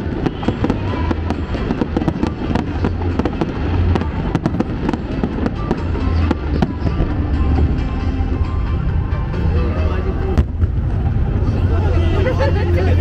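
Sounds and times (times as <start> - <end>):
fireworks cracks and bangs: 0.0 - 8.4
music playing: 0.0 - 13.0.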